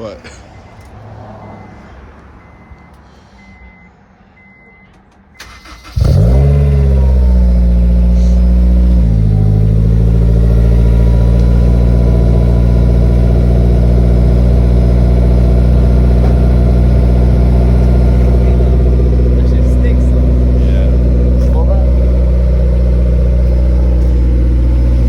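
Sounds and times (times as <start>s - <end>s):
car engine idling loudly: 6.0s - 25.0s.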